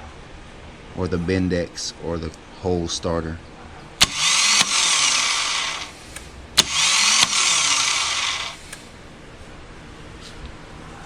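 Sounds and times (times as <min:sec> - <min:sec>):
starter click: 0:04.0 - 0:08.9
electric starter whirring: 0:04.0 - 0:09.0.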